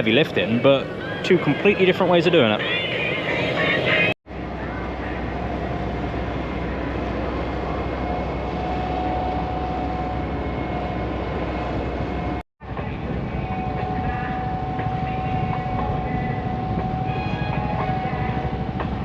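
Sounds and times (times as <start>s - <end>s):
engine drone with high whine: 0.0s - 19.0s.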